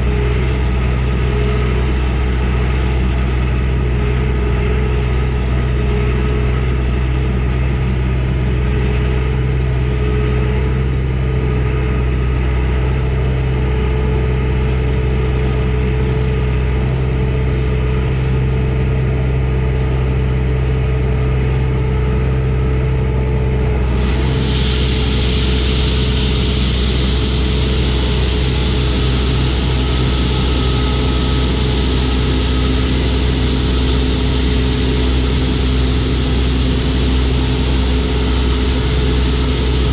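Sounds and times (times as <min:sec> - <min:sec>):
truck engine running: 0:00.0 - 0:39.9
steady hiss: 0:23.8 - 0:39.9.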